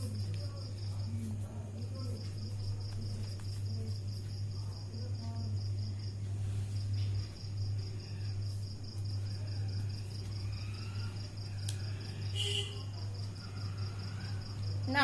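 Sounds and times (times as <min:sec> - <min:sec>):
low electrical hum: 0:00.0 - 0:15.0
cricket chirping: 0:06.8 - 0:15.0.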